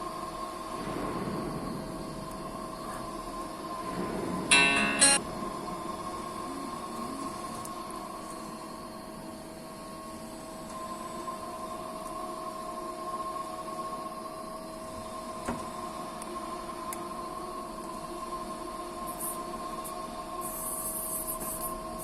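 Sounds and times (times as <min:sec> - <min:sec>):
steady machine whine: 0:00.0 - 0:19.0.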